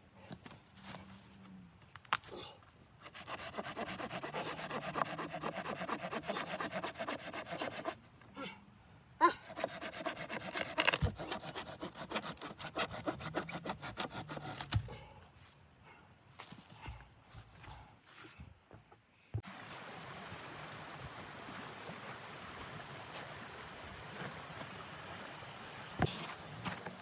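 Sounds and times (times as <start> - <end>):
rapid rasping strokes: 3.0 - 8.0, 9.5 - 14.7.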